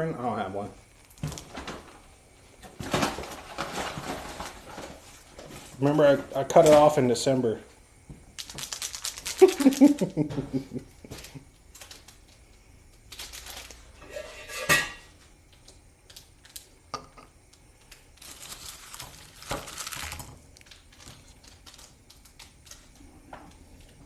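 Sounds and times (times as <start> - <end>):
dishes and cutlery clattering: 14.0 - 15.1.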